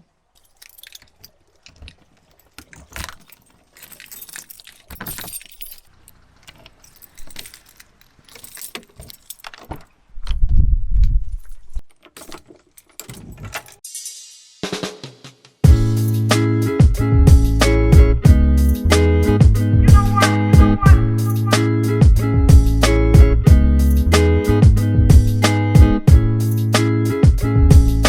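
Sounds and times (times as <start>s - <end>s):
handling clicks: 0.4s - 9.9s
keys jangling: 0.4s - 9.9s, 11.2s - 13.8s, 21.2s - 21.6s.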